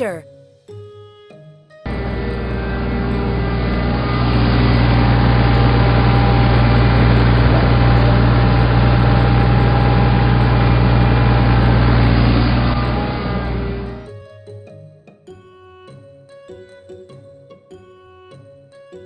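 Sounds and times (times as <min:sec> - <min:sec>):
tractor engine droning: 0:01.9 - 0:14.1.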